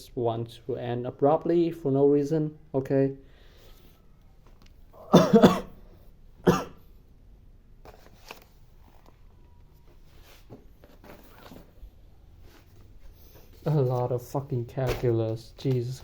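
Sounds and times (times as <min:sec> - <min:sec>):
man coughing: 0:05.0 - 0:05.8, 0:06.4 - 0:06.8.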